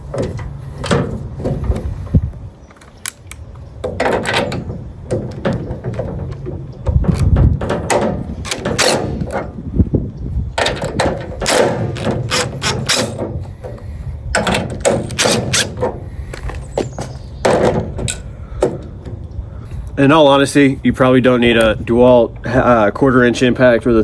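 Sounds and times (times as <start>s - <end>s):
impact driver rattling bursts: 3.8s - 9.6s, 10.6s - 18.1s.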